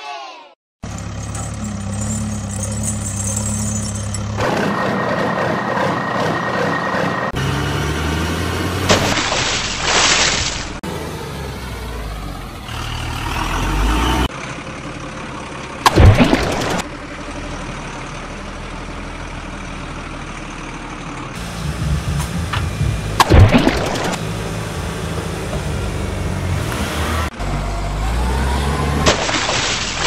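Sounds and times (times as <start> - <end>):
vehicle engines: 0.8 - 30.0
loud crashes: 21.4 - 24.2.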